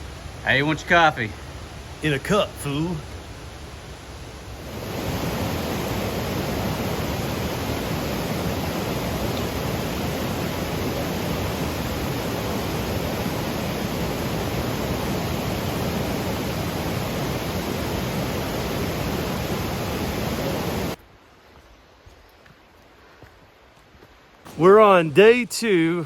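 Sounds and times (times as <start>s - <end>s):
loud steady rushing noise: 4.5s - 21.0s.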